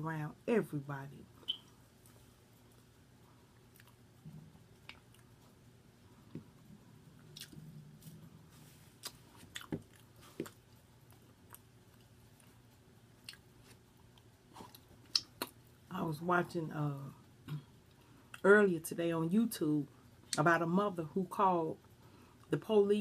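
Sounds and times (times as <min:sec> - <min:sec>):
steady low hum: 0:00.0 - 0:23.0
wet mouth clicks chewing: 0:03.6 - 0:04.0, 0:07.2 - 0:07.6, 0:14.6 - 0:15.6.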